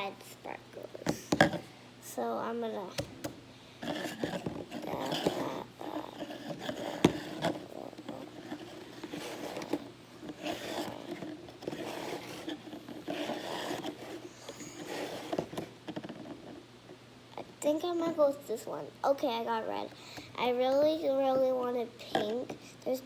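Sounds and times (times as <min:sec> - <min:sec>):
rummaging through plastic containers: 0:03.8 - 0:05.6.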